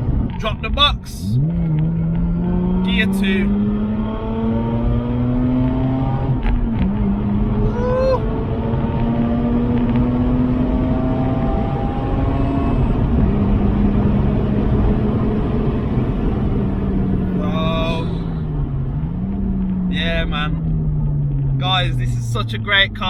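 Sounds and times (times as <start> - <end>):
rotary engine accelerating: 0.0 - 23.0.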